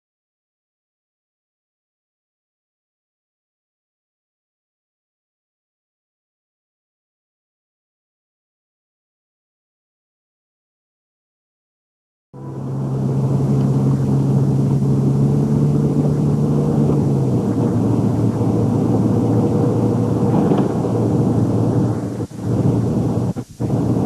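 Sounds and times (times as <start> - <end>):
car engine and road rumble: 12.4 - 24.0
low hum: 12.4 - 24.0.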